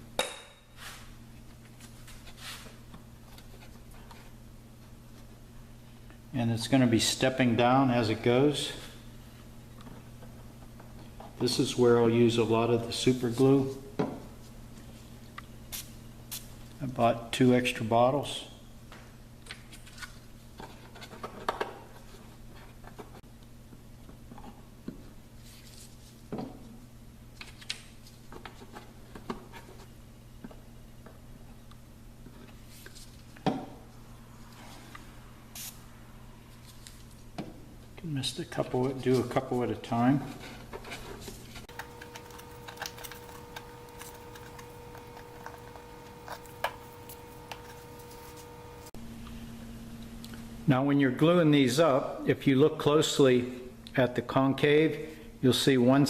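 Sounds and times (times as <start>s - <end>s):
low steady hum: 28.3s - 52.3s
small wooden pieces clicking: 41.7s - 47.9s.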